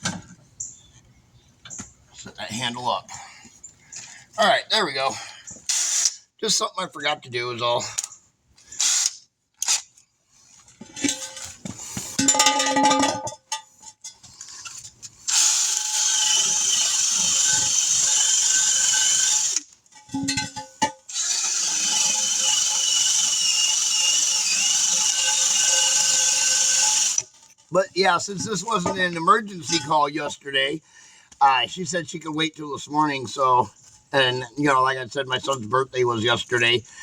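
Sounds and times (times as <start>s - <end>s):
drill wire brush scrubbing metal: 15.3s - 19.6s, 21.1s - 27.4s.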